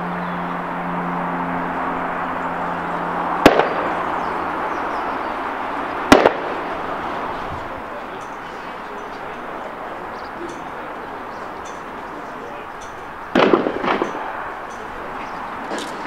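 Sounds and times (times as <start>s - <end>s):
low engine hum: 0.0s - 16.0s
wheels clacking on rail joints: 5.0s - 16.0s.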